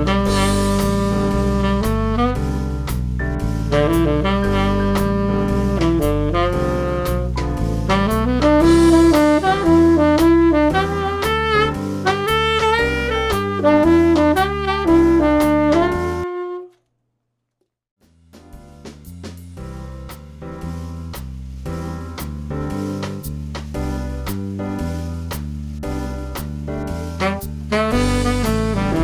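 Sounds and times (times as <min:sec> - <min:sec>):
backing track with bass and drums: 0:00.0 - 0:16.4, 0:18.0 - 0:29.0
tenor saxophone jazz melody: 0:00.0 - 0:16.8, 0:27.1 - 0:29.0.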